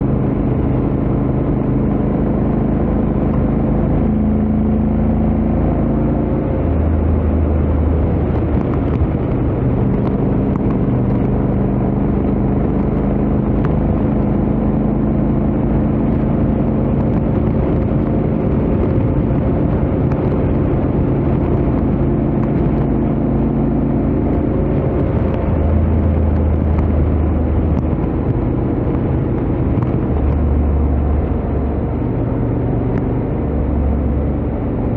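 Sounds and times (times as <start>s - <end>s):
motorcycle engine at highway speed: 0.0s - 34.9s
road and wind noise: 0.0s - 34.9s.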